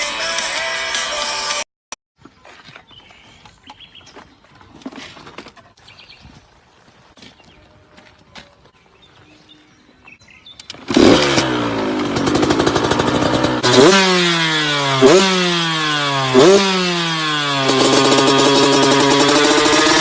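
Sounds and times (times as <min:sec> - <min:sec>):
motorcycle engine revving: 0:10.6 - 0:20.0.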